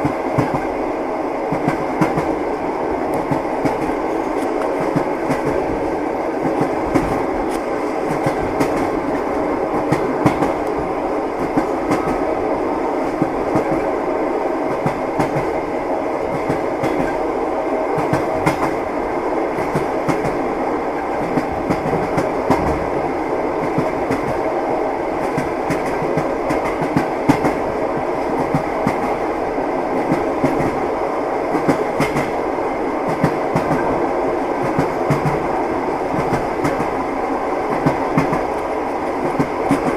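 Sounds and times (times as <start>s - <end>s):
train wheels clattering on rails: 0.0s - 0.8s, 1.5s - 12.3s, 13.0s - 14.0s, 14.6s - 30.9s, 31.5s - 39.9s.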